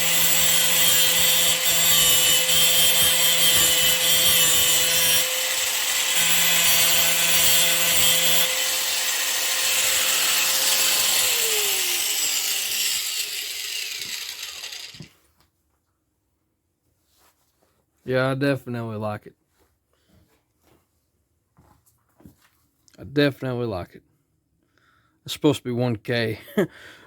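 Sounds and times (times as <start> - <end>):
angle grinder whining: 0.0 - 15.1
grinder wheel grinding workpiece: 0.0 - 15.2.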